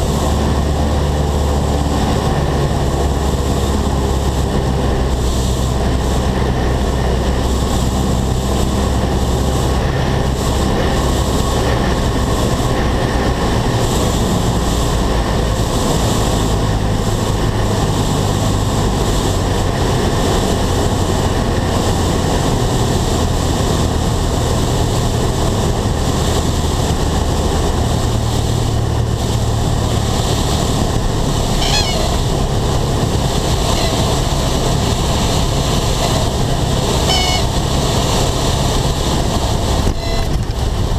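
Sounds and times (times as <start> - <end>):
airplane engine and propeller drone: 0.0 - 40.9
rushing air: 0.0 - 40.9
warbling high tone: 31.5 - 32.3, 33.5 - 34.3, 35.8 - 37.8, 39.8 - 40.4.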